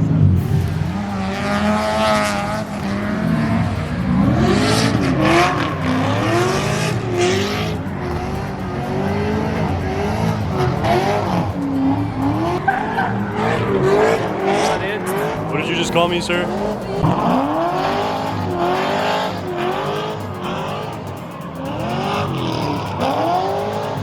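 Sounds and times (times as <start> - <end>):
car engine revving: 0.0 - 24.0
hissing noise: 0.3 - 24.0.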